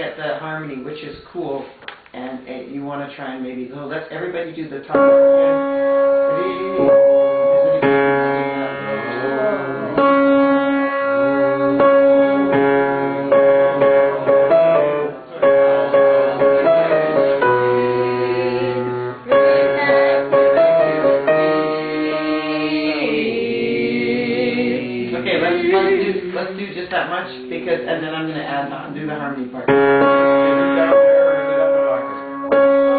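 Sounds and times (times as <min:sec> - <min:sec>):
piano accompaniment: 0:04.9 - 0:32.9
group of voices singing: 0:05.2 - 0:28.3.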